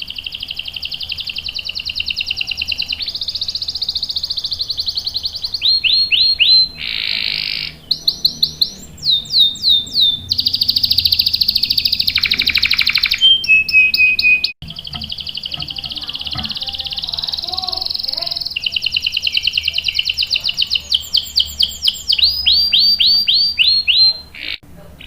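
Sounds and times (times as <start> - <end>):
canary singing trills: 0.0 - 25.0.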